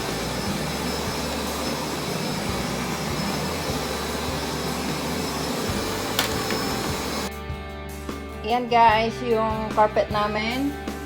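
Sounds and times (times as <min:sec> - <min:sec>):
vacuum cleaner running: 0:00.0 - 0:07.3.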